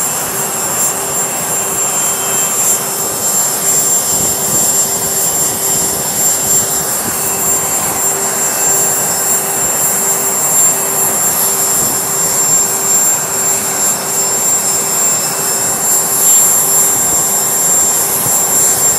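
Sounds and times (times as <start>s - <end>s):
high-pitched whine: 0.0s - 18.9s
jet engines running: 0.0s - 18.9s.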